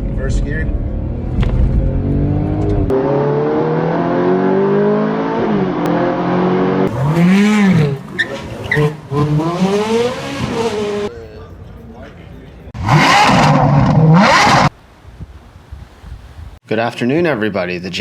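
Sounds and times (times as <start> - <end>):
car engine accelerating hard: 0.0 - 11.1, 12.8 - 14.7.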